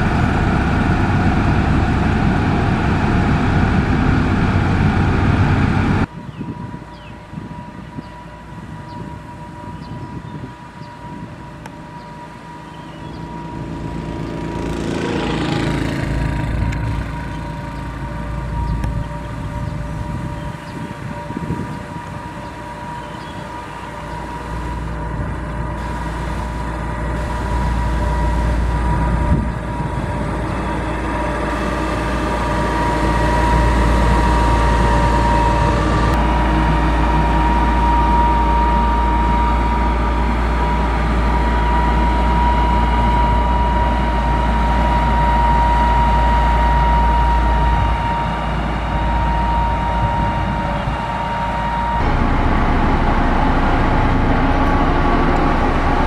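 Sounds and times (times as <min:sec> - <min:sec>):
heavy machine engine drone: 0:00.0 - 0:56.0.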